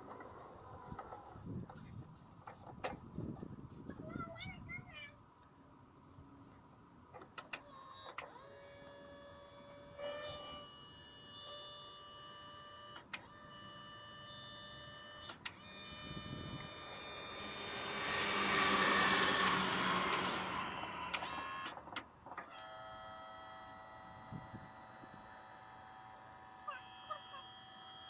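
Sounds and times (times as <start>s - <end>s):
electric motor whining: 8.1s - 21.9s
rushing noise: 16.4s - 21.7s.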